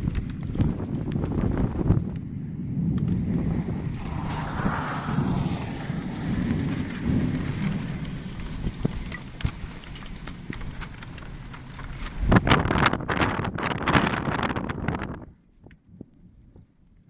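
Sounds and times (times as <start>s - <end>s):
wind buffeting microphone: 0.0s - 16.8s
heavy rain pouring: 2.8s - 12.4s
raindrops ticking on surfaces: 5.8s - 12.8s.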